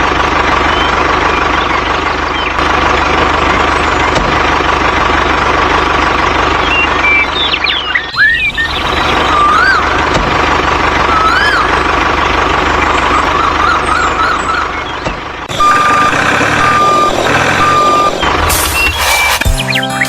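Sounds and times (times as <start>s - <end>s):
heavy vehicle engine running: 0.0s - 20.0s
wavering whistle-like glides: 7.7s - 10.1s, 11.0s - 11.9s
reversing alarm beeping: 15.5s - 19.4s.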